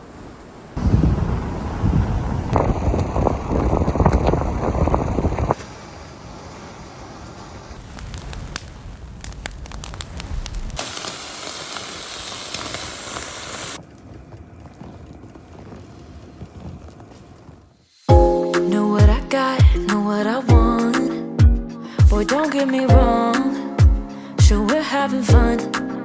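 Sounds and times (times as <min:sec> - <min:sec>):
crackling: 0:02.6 - 0:17.5
bright steady hiss: 0:05.6 - 0:13.8.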